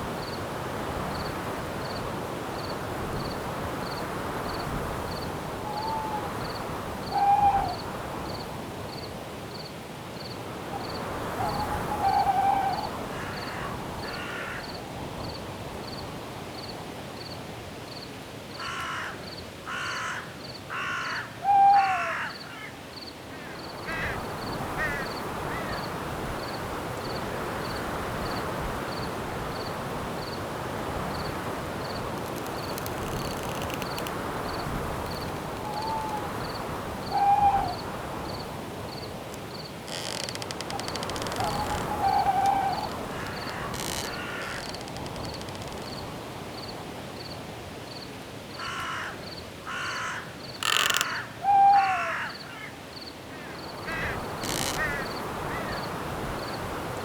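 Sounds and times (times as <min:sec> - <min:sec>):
wind in the trees: 0:00.0 - 0:19.7, 0:20.5 - 0:57.0
crickets chirping: 0:00.0 - 0:57.0
owl hooting: 0:05.6 - 0:06.4, 0:07.1 - 0:07.9, 0:11.3 - 0:13.7, 0:20.8 - 0:22.4, 0:35.6 - 0:38.0, 0:40.7 - 0:44.7, 0:49.7 - 0:52.7
bird harsh calls: 0:35.6 - 0:37.8, 0:39.9 - 0:44.8.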